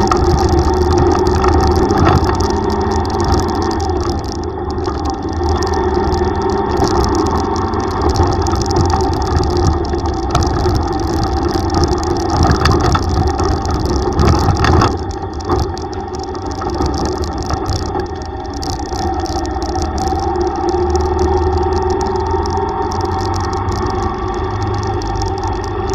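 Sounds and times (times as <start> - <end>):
road noise: 0.0 - 25.9.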